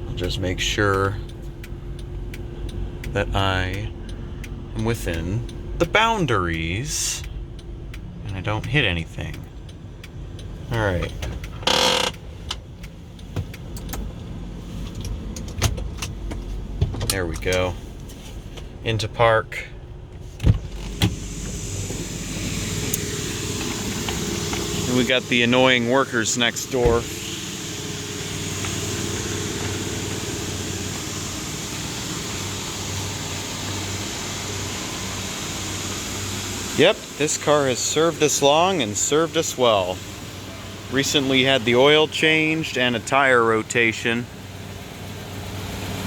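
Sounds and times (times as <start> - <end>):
car engine running low: 0.0 - 46.0
sharp clicks: 0.1 - 16.2.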